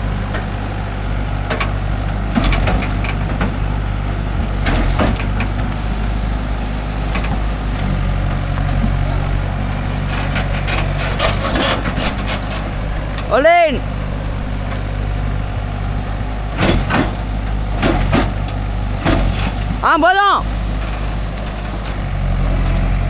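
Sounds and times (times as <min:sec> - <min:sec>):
diesel engine running: 0:00.0 - 0:23.0
backhoe bucket knocks and clatter: 0:01.4 - 0:05.9, 0:16.6 - 0:19.8.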